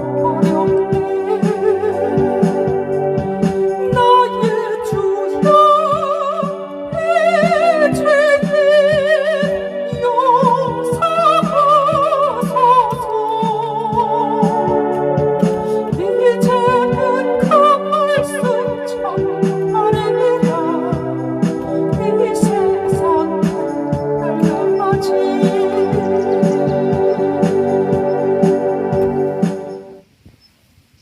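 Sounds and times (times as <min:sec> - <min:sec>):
electronic keyboard playing a hymn: 0:00.0 - 0:30.0
accompaniment drum beat: 0:19.5 - 0:30.0.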